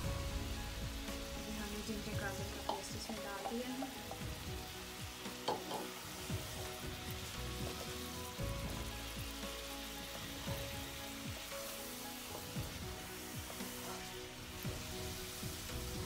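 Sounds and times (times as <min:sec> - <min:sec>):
chicken sizzling in a wok: 0:00.0 - 0:16.0
wooden spatula knocking pan: 0:05.4 - 0:06.0.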